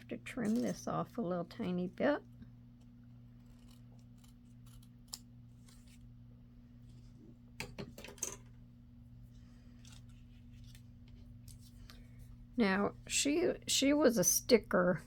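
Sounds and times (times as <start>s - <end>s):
low steady hum: 0.0s - 15.0s
scissors snipping paper: 3.4s - 6.0s.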